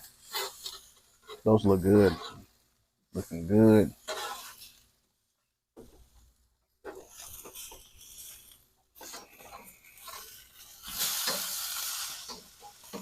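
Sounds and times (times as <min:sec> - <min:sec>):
spatula scraping and knocking grate: 0:00.0 - 0:02.5, 0:03.9 - 0:04.9, 0:06.8 - 0:13.0
patties sizzling on a grill: 0:00.0 - 0:13.0.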